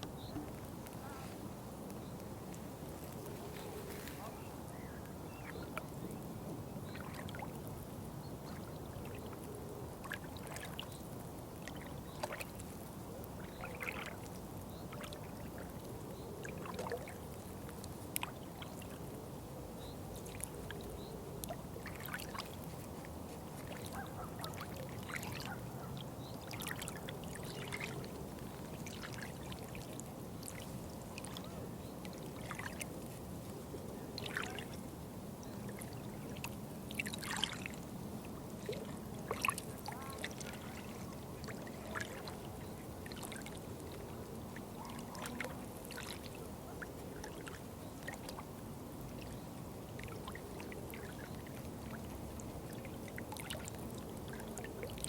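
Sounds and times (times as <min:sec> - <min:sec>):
water splashes and drips: 0:05.4 - 0:07.8, 0:08.4 - 0:19.2, 0:20.1 - 0:25.6, 0:26.2 - 0:55.0
water trickling: 0:10.0 - 0:19.1, 0:26.2 - 0:33.1, 0:34.2 - 0:55.0.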